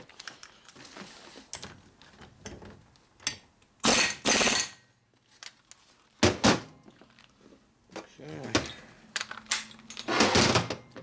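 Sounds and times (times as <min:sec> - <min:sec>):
hand tools clicking and clinking: 0:08.5 - 0:11.0.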